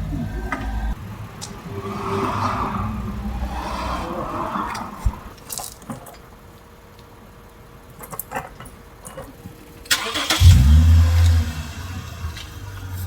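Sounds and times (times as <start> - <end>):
car engine starting and idling: 0.0 - 5.6, 9.8 - 13.0.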